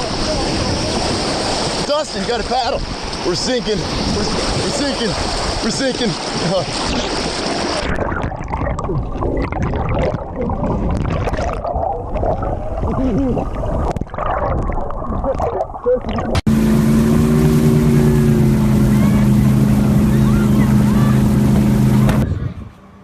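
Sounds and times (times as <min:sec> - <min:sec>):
muffled water churning: 0:00.0 - 0:22.8
boat engine humming: 0:16.4 - 0:23.0.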